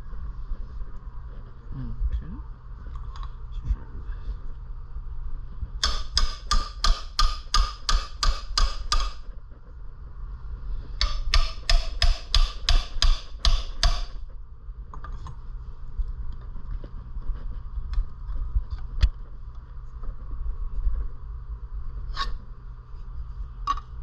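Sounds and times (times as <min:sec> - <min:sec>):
hammer striking metal: 0:05.8 - 0:09.3, 0:11.0 - 0:14.2.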